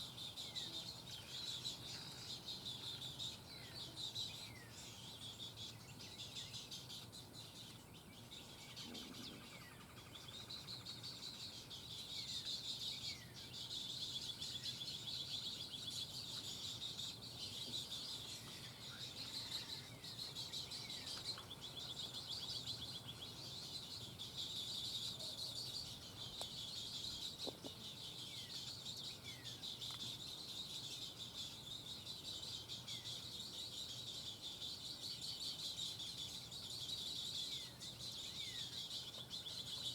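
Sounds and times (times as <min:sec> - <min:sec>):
birds chattering: 0:14.4 - 0:39.9.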